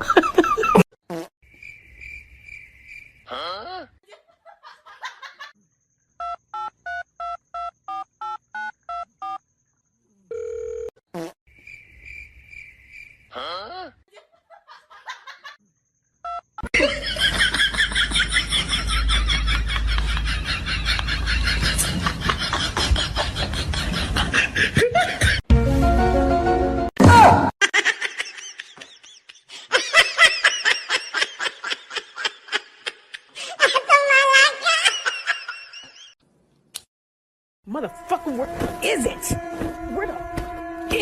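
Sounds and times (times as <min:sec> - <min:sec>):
telephone ring tone: 0:10.3 - 0:10.9.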